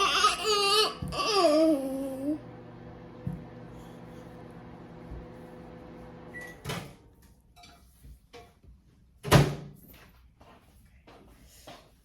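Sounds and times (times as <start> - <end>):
microwave oven humming: 1.1 - 7.2
microwave beep: 6.2 - 6.8.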